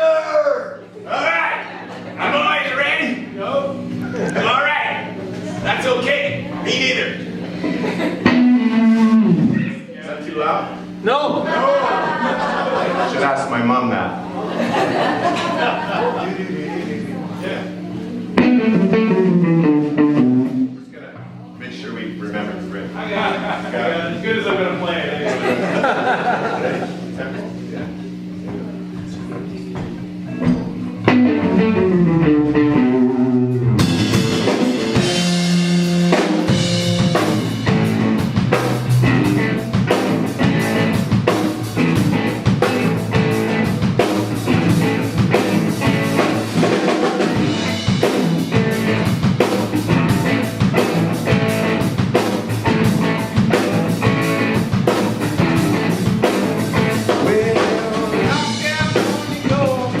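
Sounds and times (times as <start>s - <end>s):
electric guitar riff: 7.2s - 9.9s, 17.6s - 20.9s, 30.8s - 60.0s
drum kit: 8.2s - 9.7s, 18.4s - 20.8s, 29.7s - 60.0s.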